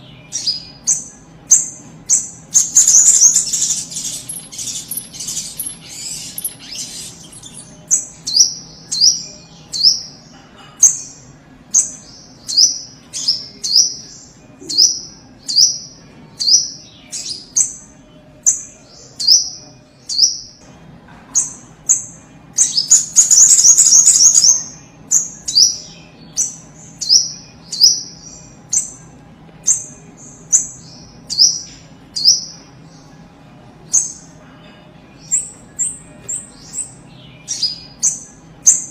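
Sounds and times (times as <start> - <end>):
bird calling high slurred notes: 0.0 - 10.2, 21.4 - 29.0
bird rapid chattering: 0.4 - 9.2, 21.4 - 25.8.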